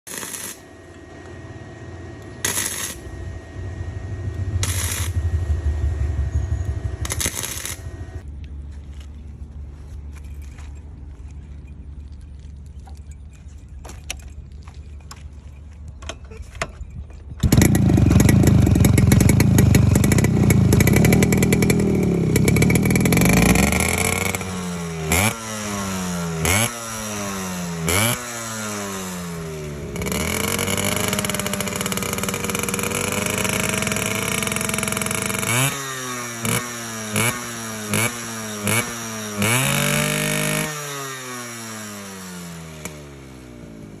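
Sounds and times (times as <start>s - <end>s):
motorcycle engine revving: 0.0s - 8.3s, 17.4s - 44.0s.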